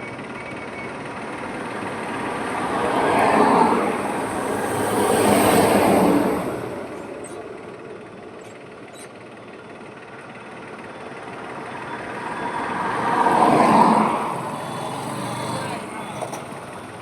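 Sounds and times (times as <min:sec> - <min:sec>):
highway road noise: 0:00.0 - 0:17.0
vehicles passing: 0:00.0 - 0:17.0.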